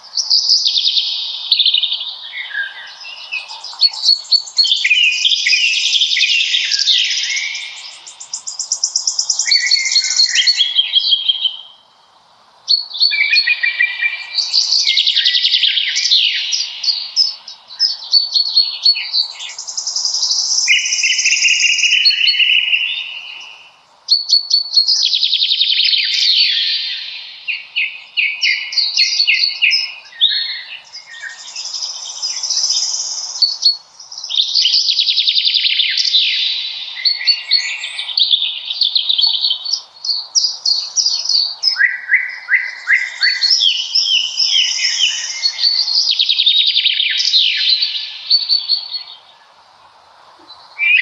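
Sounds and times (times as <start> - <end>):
songbirds singing trills: 0.0 - 51.0.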